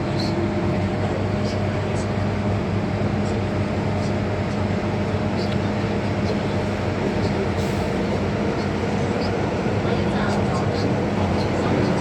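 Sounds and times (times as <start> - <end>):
train rumbling in tunnel: 0.0 - 12.0.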